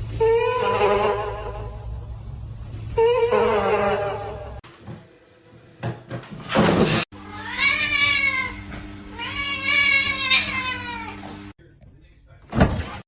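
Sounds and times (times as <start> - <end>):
cat meowing: 7.3 - 11.3.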